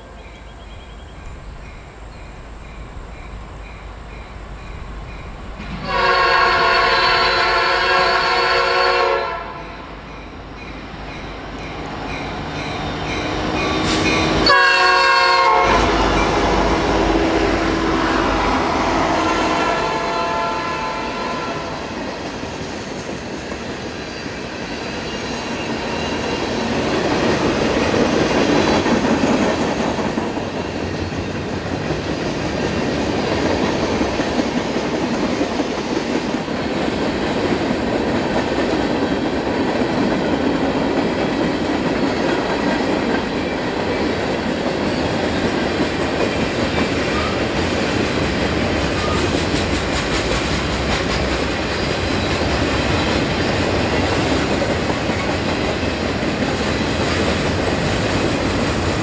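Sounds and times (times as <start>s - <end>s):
train wheels on rails: 0.0s - 59.0s
locomotive air horn: 5.8s - 9.8s, 13.8s - 21.8s.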